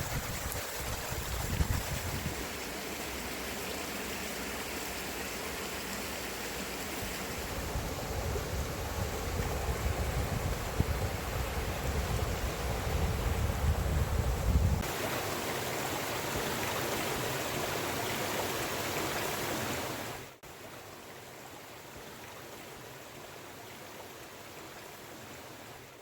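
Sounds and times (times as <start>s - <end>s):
wind rumble on microphone: 0.0s - 2.5s, 7.3s - 14.9s.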